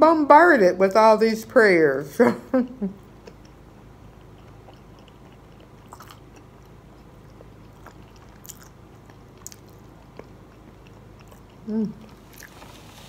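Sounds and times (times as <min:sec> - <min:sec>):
low room hum: 0:00.0 - 0:13.0
chewing fried food: 0:03.0 - 0:13.0.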